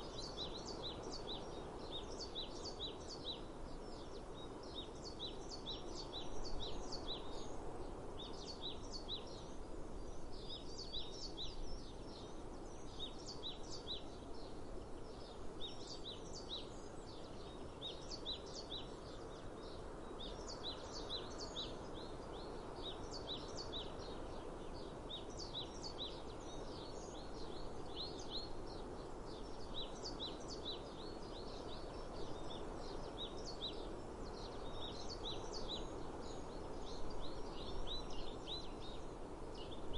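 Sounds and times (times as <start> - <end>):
small birds chirping: 0.0 - 39.9
steady outdoor hiss: 0.0 - 39.9.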